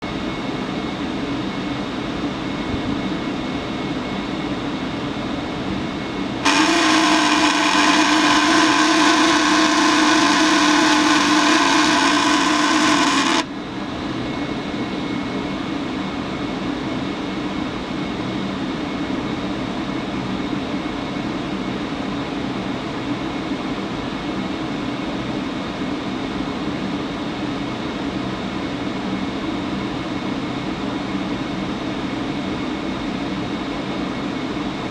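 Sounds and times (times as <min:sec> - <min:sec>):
furnace blower fan running: 0:00.0 - 0:20.1
loud rasping buzz: 0:06.4 - 0:13.5.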